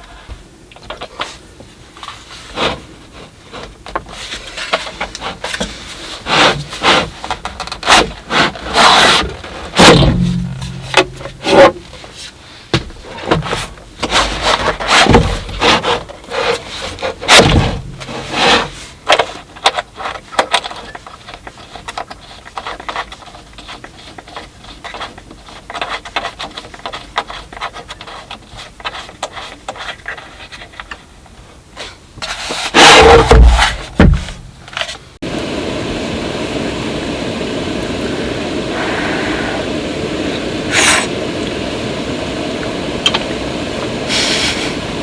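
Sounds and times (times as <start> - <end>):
scraping and knocking of objects: 0.0 - 35.2.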